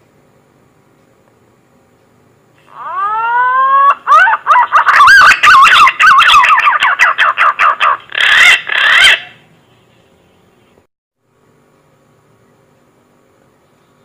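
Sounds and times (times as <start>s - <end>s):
pigeon whistling song: 2.8s - 9.4s.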